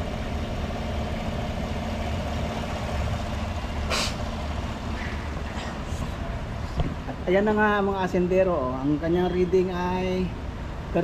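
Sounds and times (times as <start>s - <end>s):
car engine idling: 0.0s - 8.7s
short hiss: 3.9s - 4.3s.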